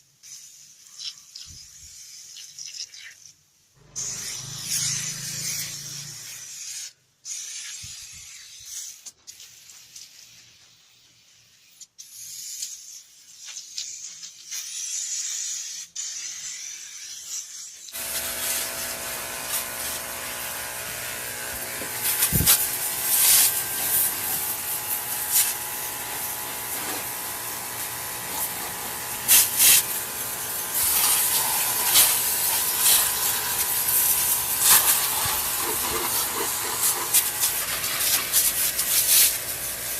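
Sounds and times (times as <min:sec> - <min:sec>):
spray hiss: 0:00.0 - 0:03.3, 0:03.9 - 0:39.9.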